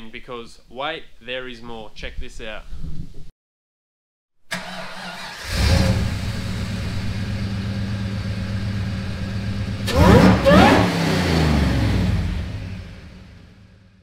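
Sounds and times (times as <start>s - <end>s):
car engine starting: 4.5s - 14.0s
car engine revving: 4.6s - 13.9s
car engine idling: 5.2s - 13.9s.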